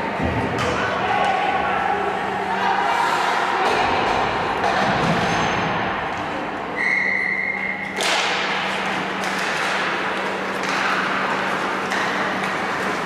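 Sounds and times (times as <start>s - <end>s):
referee's whistle: 6.8s - 7.9s.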